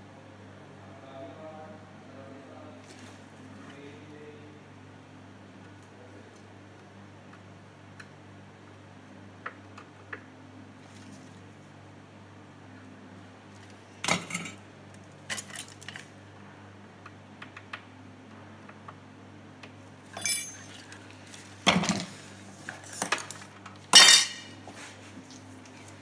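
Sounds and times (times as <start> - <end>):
faint steady hum: 0.0 - 26.0
tools clattering on workbench: 14.0 - 14.6, 20.2 - 21.0, 21.7 - 24.6.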